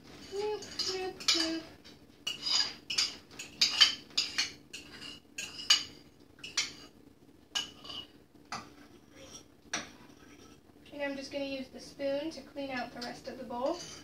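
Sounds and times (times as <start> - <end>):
spoon scraping a mixing bowl: 0.1 - 1.6, 2.3 - 7.0, 7.6 - 10.6, 13.0 - 14.0.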